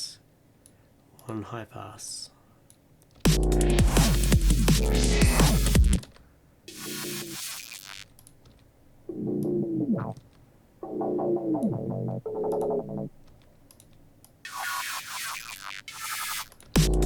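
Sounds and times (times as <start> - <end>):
distorted synth bass notes: 3.3 - 6.0, 6.7 - 8.1, 9.1 - 10.2, 10.8 - 13.1, 14.5 - 17.0.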